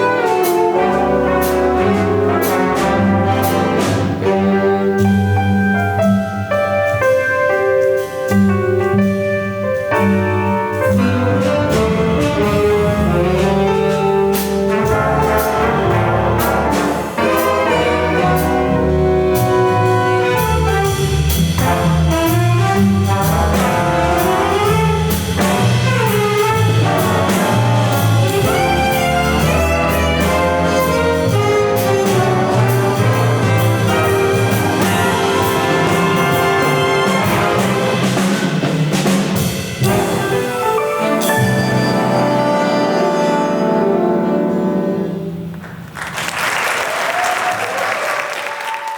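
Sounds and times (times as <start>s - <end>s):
drum and cymbal hits: 0.0s - 41.8s
brass band music: 0.0s - 48.8s.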